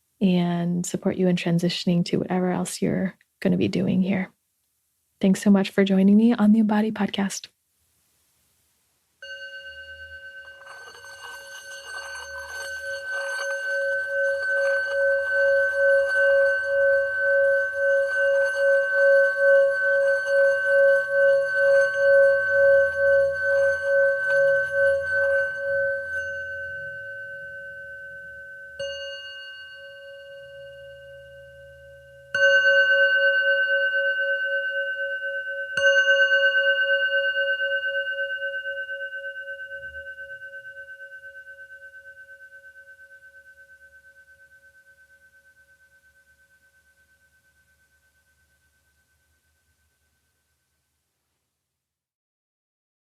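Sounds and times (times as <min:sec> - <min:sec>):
singing bowl struck: 0:09.2 - 0:42.2
rough rubbing on singing bowl: 0:09.2 - 0:50.3
singing bowl ringing: 0:09.2 - 0:50.6.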